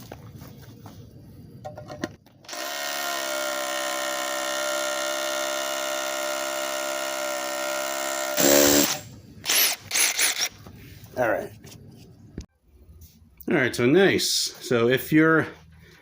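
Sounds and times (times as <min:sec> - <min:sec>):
rotary hammer drilling into concrete: 0:02.5 - 0:10.5.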